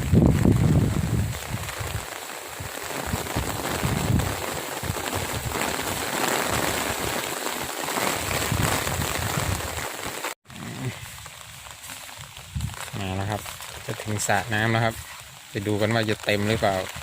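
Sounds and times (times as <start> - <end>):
wind buffeting microphone: 0.0 - 7.2, 8.2 - 9.8, 12.4 - 13.1
steady rain falling: 0.0 - 17.0.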